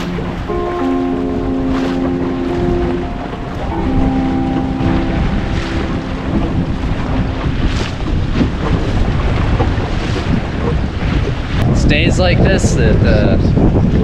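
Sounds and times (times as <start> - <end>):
background music held notes: 0.0 - 9.0
water splashing along hull: 0.0 - 14.0
wind buffeting microphone: 0.0 - 14.0.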